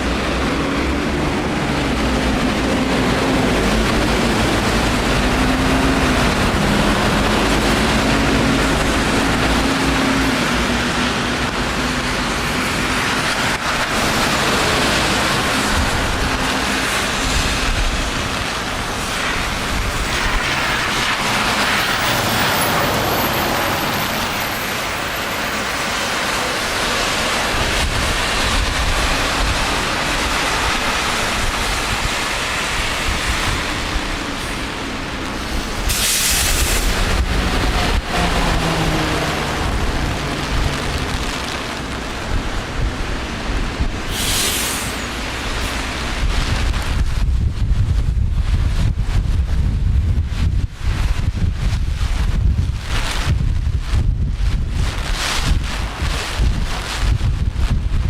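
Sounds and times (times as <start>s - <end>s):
rain hissing: 0.0s - 58.0s
tyres on wet road: 0.0s - 58.0s
vehicle engine humming: 34.0s - 43.9s.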